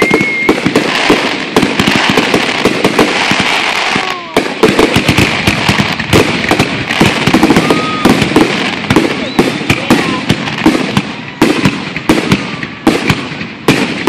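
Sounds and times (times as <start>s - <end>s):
falling firework whistle: 0.0s - 1.2s, 7.3s - 10.2s
fireworks bangs and crackles: 0.0s - 14.0s.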